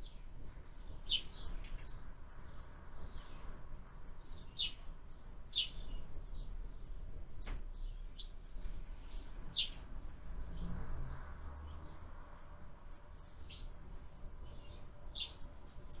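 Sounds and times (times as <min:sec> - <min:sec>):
sparrows chirping: 0:00.0 - 0:16.0.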